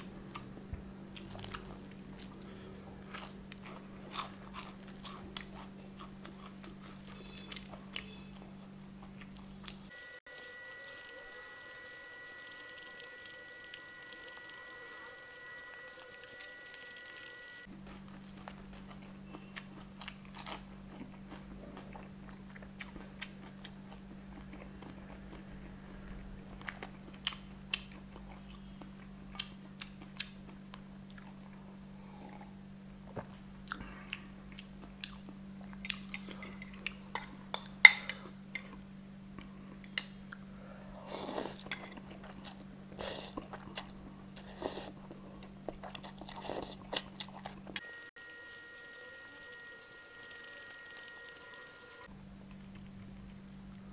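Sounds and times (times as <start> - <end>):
chewing crispy fried chicken: 1.2 - 32.5, 33.1 - 37.6, 38.6 - 53.9.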